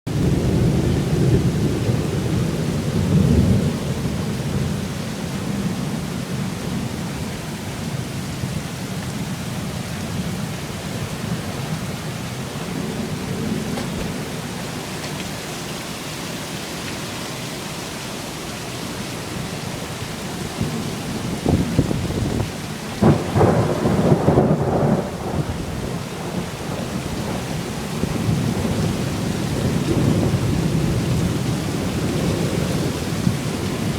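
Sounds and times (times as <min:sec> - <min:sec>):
cracking thunder: 0:00.1 - 0:05.8, 0:10.2 - 0:15.4, 0:20.5 - 0:33.9
thunder rumbling: 0:00.1 - 0:15.5, 0:19.5 - 0:33.9
heavy rain pouring: 0:00.1 - 0:33.9.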